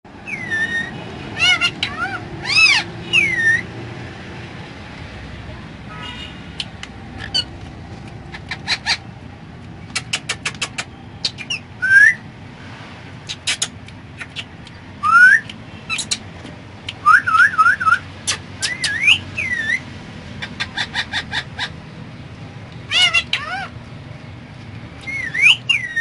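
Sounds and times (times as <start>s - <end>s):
parrot whistling: 0.2s - 3.7s, 11.2s - 12.2s, 13.3s - 16.2s, 17.0s - 19.8s, 25.0s - 26.0s.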